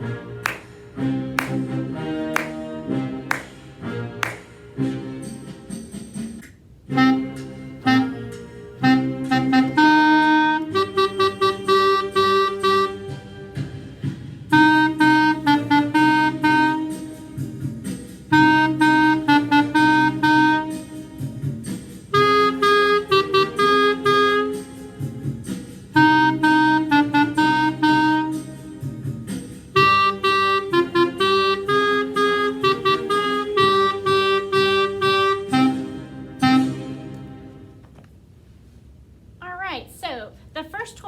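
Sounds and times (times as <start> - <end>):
clarinet playing blues: 6.9 - 13.3, 14.5 - 17.1, 18.3 - 20.9, 22.1 - 24.8, 26.0 - 28.5, 29.8 - 37.1.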